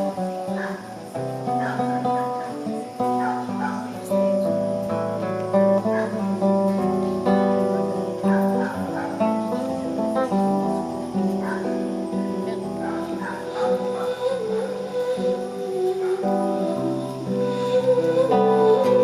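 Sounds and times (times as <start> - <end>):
plucked string chords: 0.0 - 19.0.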